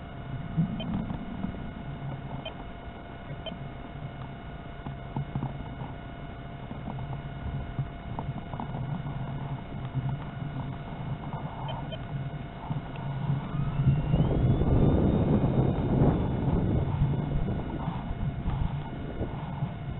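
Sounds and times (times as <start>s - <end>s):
faint steady hum: 0.0s - 19.9s
wind buffeting microphone: 6.7s - 19.9s.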